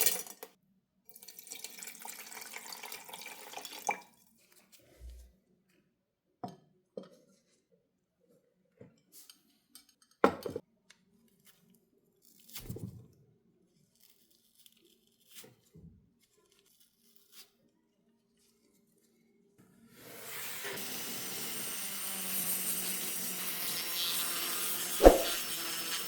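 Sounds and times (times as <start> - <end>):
sharp knock: 25.0 - 25.4.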